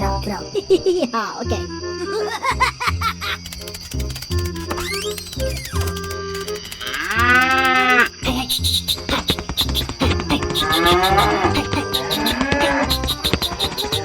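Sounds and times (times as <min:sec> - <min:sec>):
background music with steady beat: 0:08.2 - 0:14.0.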